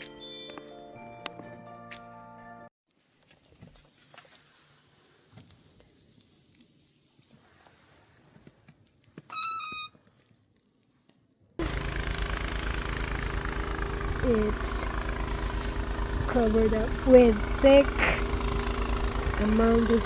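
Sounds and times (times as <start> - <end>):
outdoor hiss: 2.9 - 8.8, 11.6 - 20.0
engine idling: 11.6 - 20.0.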